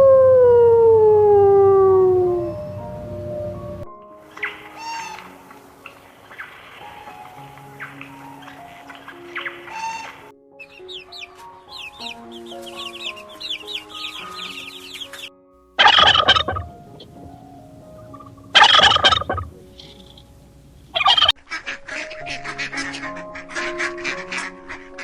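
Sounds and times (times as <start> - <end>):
background music: 0.0 - 25.0
small birds chirping rapidly: 7.8 - 21.4
large bird loud calls: 15.8 - 21.3.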